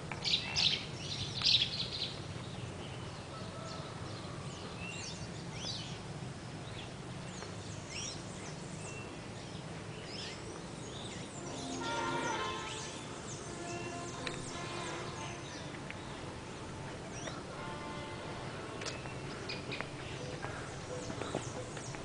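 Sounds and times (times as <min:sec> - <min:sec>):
birds chirping and whistling: 0:07.9 - 0:16.2.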